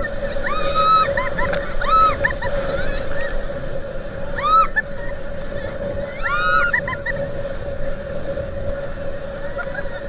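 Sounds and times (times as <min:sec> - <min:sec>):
high-pitched shrieks: 0:00.0 - 0:03.4, 0:04.3 - 0:05.2, 0:06.0 - 0:07.1
motorboat engine droning: 0:00.0 - 0:10.0
water noise: 0:00.0 - 0:10.0.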